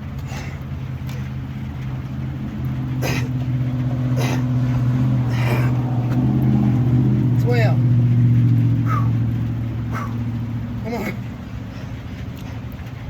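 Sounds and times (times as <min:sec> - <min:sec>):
low motor hum: 0:00.0 - 0:13.0
man breathing hard: 0:00.2 - 0:01.5, 0:04.1 - 0:06.0, 0:08.8 - 0:10.4, 0:11.4 - 0:12.8.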